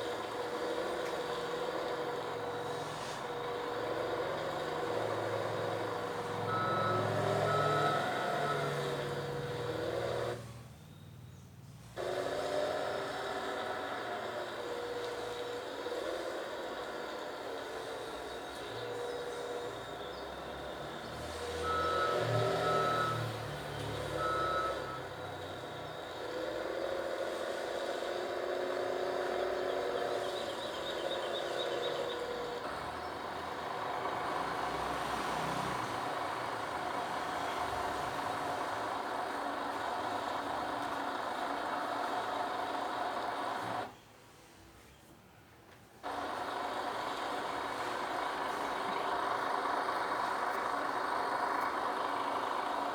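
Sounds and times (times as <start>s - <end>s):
heavy vehicle engine running: 0.0s - 11.2s, 11.8s - 44.0s, 46.0s - 52.9s
reversing alarm beeps: 6.3s - 9.7s, 18.2s - 26.2s.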